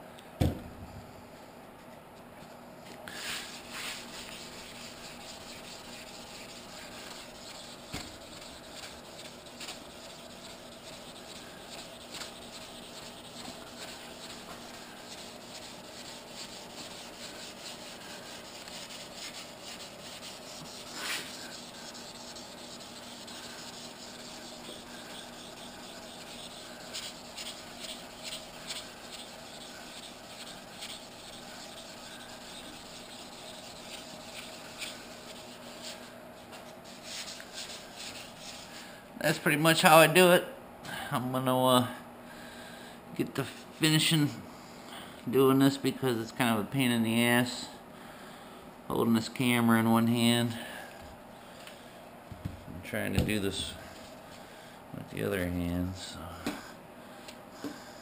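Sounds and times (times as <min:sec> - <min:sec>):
loud sanding swish: 0:03.2 - 0:38.7
sandpaper rubbing on metal: 0:03.2 - 0:38.8.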